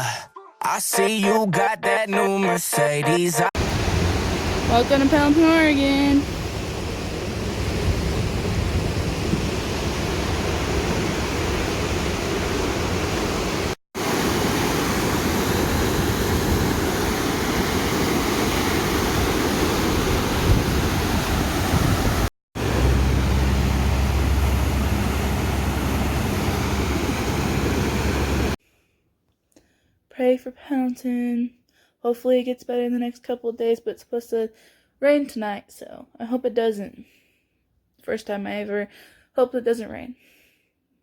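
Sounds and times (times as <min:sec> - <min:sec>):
river rushing: 0:03.6 - 0:05.6, 0:09.1 - 0:28.6
wind on microphone: 0:06.3 - 0:12.5, 0:19.0 - 0:22.3.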